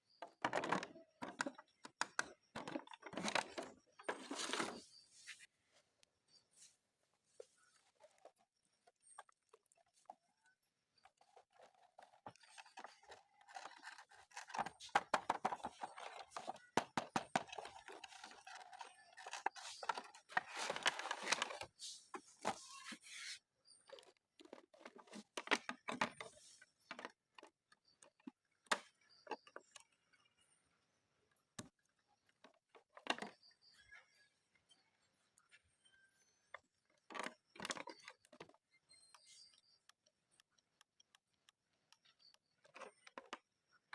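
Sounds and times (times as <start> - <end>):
plastic packaging rustling: 11.6 - 22.8
small clicks: 37.0 - 43.5.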